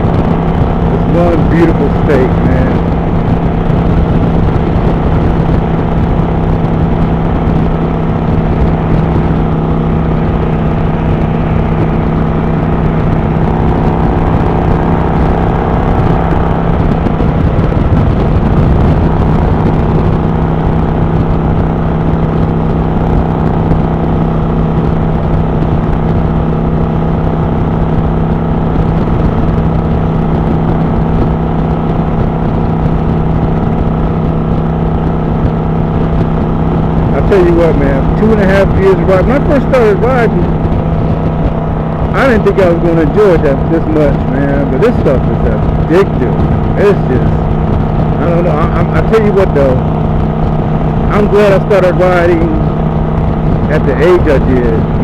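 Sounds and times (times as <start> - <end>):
motorcycle engine cruising: 0.0 - 55.0
road and wind noise: 0.0 - 55.0.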